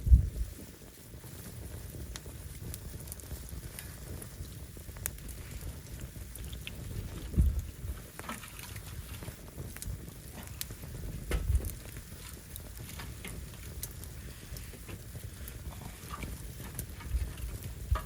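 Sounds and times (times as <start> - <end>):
fire crackling and popping: 0.0 - 18.0
low rumble: 4.2 - 18.0.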